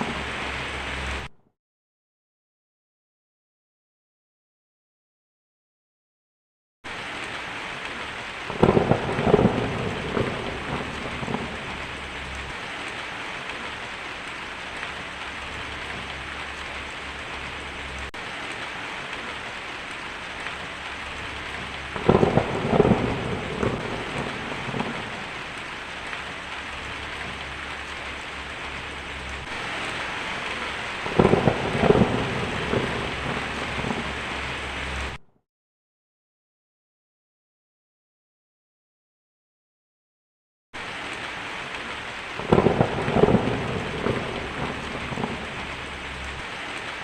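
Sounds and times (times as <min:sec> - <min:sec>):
heavy rain on a tin roof: 0:00.0 - 0:01.3, 0:06.9 - 0:35.2, 0:40.8 - 0:47.0
thunder rumbling: 0:00.0 - 0:01.3, 0:07.1 - 0:35.2, 0:42.2 - 0:47.0.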